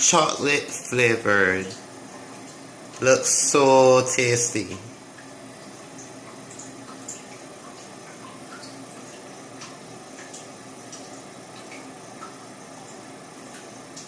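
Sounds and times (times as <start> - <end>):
oil popping and ticking: 4.2 - 14.0.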